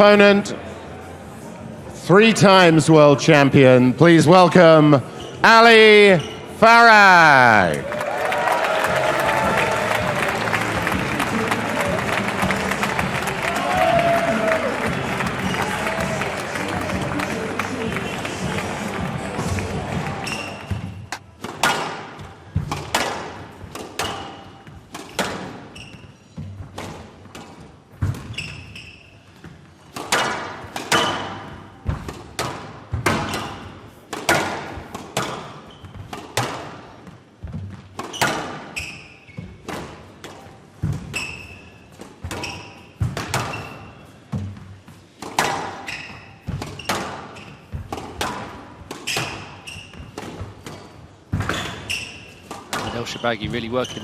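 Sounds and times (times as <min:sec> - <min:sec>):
shoe squeaks: 0:05.0 - 0:06.6, 0:20.1 - 0:21.2, 0:25.6 - 0:26.7, 0:28.0 - 0:29.9, 0:35.3 - 0:36.2, 0:38.0 - 0:39.7, 0:41.0 - 0:44.4, 0:45.8 - 0:47.8, 0:48.9 - 0:54.0
squash ball cracking off rackets: 0:09.1 - 0:25.7, 0:29.9 - 0:36.9, 0:42.0 - 0:44.5, 0:45.1 - 0:53.0.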